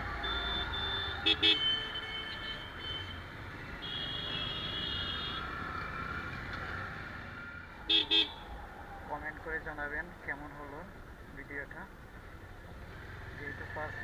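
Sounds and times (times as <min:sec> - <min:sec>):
horn beeps: 0:00.2 - 0:03.2
motorcycle road and wind noise: 0:03.1 - 0:10.3, 0:10.9 - 0:14.0.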